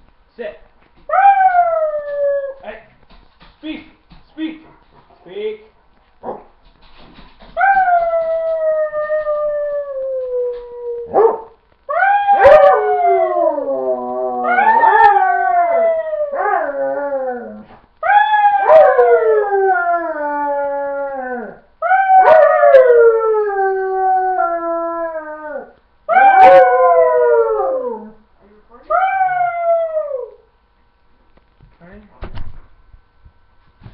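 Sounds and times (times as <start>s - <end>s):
dog howling: 1.1s - 2.6s, 7.6s - 28.2s, 28.9s - 30.4s.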